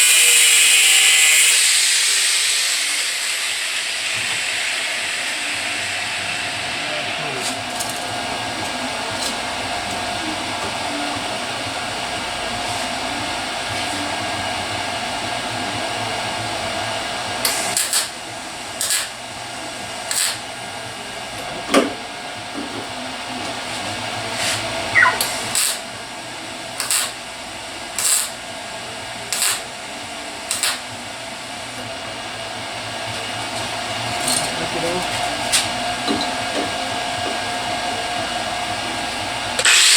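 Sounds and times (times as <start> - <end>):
machine hum: 0.0 - 17.5.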